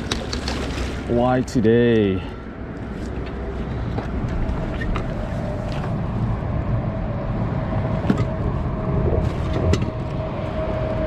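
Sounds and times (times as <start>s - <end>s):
water lapping against kayak hull: 0.0s - 1.2s
wind rumbling on microphone: 2.4s - 11.0s.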